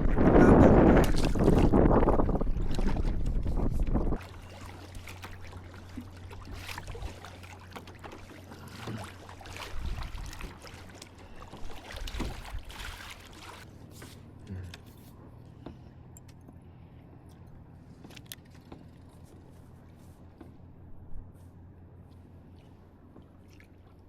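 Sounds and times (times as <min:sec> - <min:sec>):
wind buffeting microphone: 0:00.0 - 0:04.3, 0:09.7 - 0:10.6
water splashing against kayak: 0:00.0 - 0:15.9, 0:22.1 - 0:24.0.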